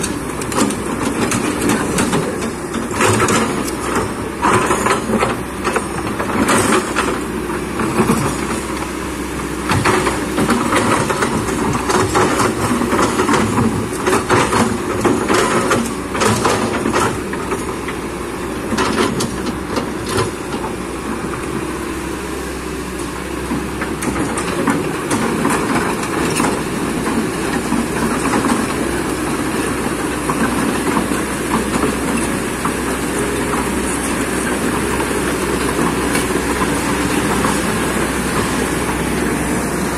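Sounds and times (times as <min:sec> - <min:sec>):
machine clanks and knocks: 0:00.0 - 0:07.2, 0:09.6 - 0:18.0, 0:23.5 - 0:39.0
excavator diesel engine: 0:00.0 - 0:39.9.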